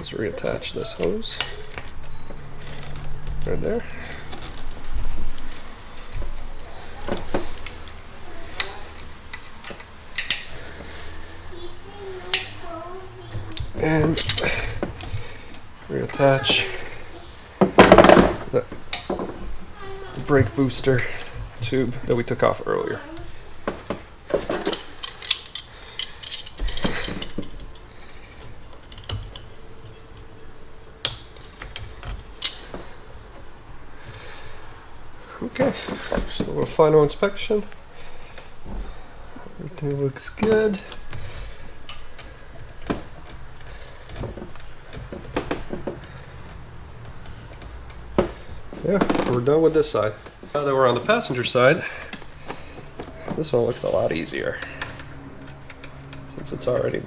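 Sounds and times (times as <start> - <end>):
clicks and rattles of hand work: 0.0 - 11.7, 17.6 - 22.4, 23.1 - 36.6, 37.6 - 57.0
sharp snaps: 9.6 - 10.6, 12.3 - 12.7
light clicks and clinks: 24.5 - 30.4.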